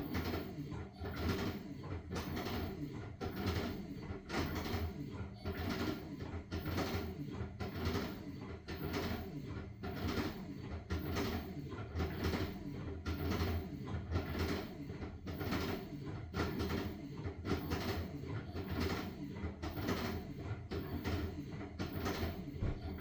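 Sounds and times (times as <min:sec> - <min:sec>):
low motor hum: 0:15.0 - 0:23.0
washing machine drum swishing: 0:17.4 - 0:23.0.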